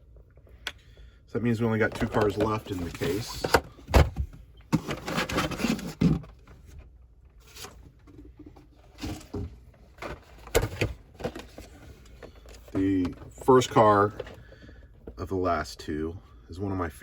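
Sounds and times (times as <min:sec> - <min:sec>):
plastic and card rustling: 0:01.5 - 0:03.6, 0:07.4 - 0:14.5.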